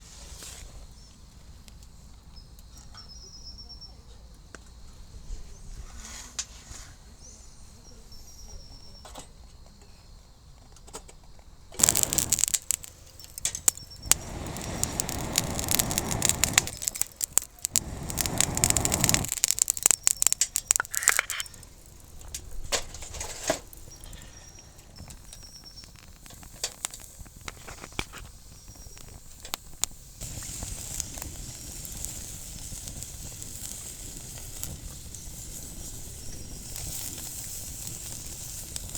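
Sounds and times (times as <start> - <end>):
insects chirping: 11.5 - 27.4, 29.9 - 38.9
rustling and scraping with clicks: 15.5 - 24.4.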